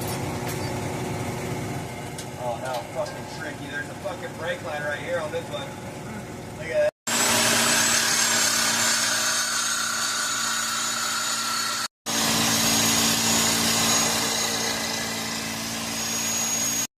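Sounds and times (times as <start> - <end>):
power tool whining: 7.1 - 16.9.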